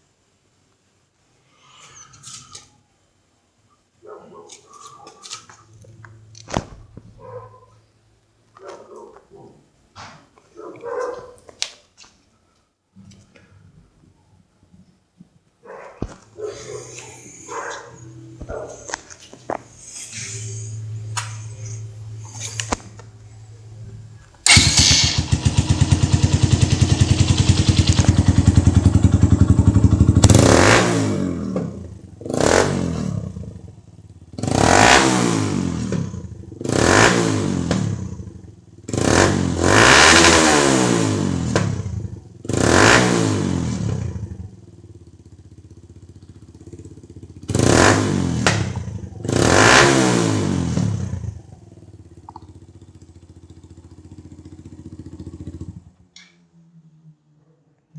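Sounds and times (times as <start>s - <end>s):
motorcycle engine idling and revving: 4.8s - 7.8s, 16.0s - 57.4s.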